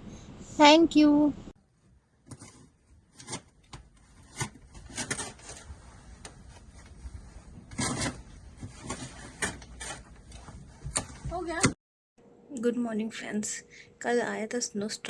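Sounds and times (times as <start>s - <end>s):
rubbing and scraping: 2.2s - 11.7s.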